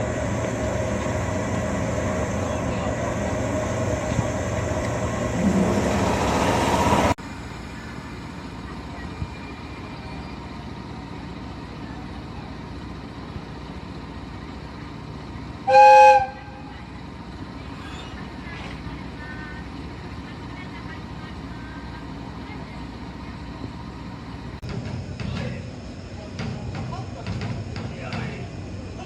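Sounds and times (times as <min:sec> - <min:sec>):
loud train running noise: 0:00.0 - 0:29.0
train horn blast: 0:15.7 - 0:16.7.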